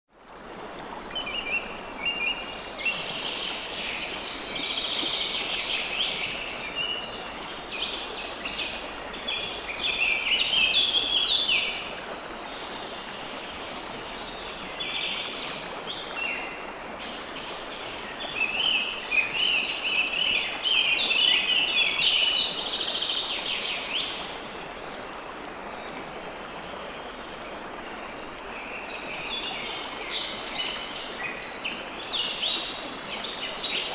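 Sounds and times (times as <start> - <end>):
water rushing: 0.2 - 33.9.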